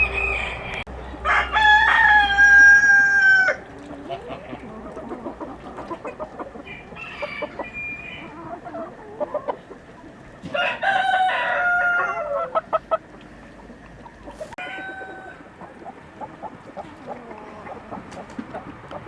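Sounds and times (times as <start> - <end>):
rooster crowing: 0.0 - 3.6, 6.6 - 8.4, 10.5 - 12.6, 14.6 - 15.4
chickens clucking: 0.0 - 19.0.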